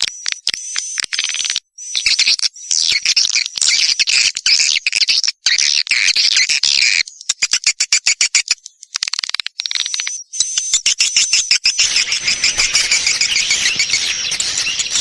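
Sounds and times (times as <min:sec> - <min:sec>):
buzzy bird call: 0:11.8 - 0:15.0
rapid sharp clicks: 0:11.8 - 0:15.0
swiftlets twittering: 0:11.8 - 0:15.0.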